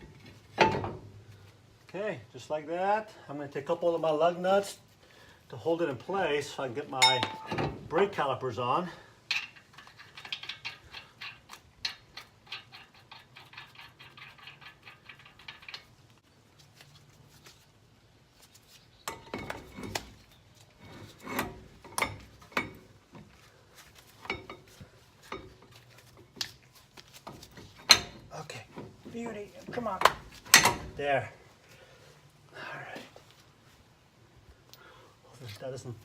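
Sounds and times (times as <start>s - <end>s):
metal clanks and knocks: 0.0s - 1.2s, 7.0s - 7.9s, 20.8s - 23.3s, 27.3s - 31.0s.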